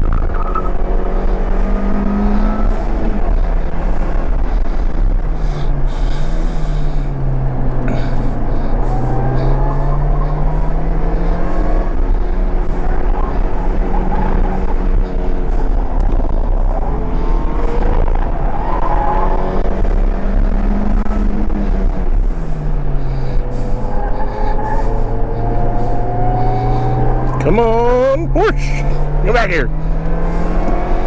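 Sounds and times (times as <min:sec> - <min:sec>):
car engine revving through gears: 0:00.0 - 0:31.0
road and wind noise: 0:00.0 - 0:31.0.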